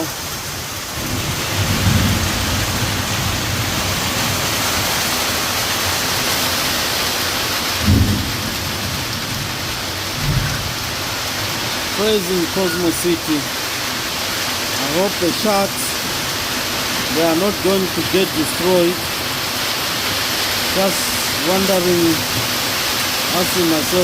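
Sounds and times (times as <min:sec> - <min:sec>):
heavy rain pouring: 0:00.0 - 0:24.0
short low rumbles: 0:10.2 - 0:11.0.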